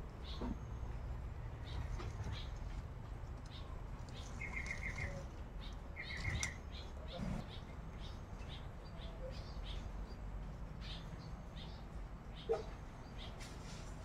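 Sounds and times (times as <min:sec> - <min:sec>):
small birds chirping: 0:00.0 - 0:14.0
bird trill: 0:03.5 - 0:09.8.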